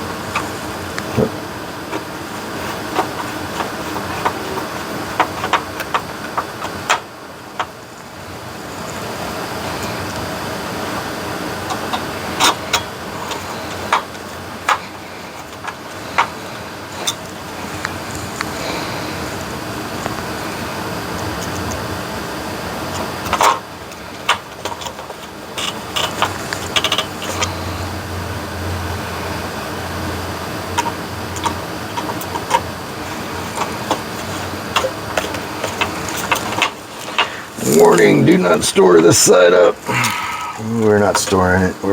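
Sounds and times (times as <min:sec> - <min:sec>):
steady background hum: 0:00.0 - 0:41.9
plastic parts being handled: 0:01.8 - 0:07.7, 0:30.8 - 0:38.0.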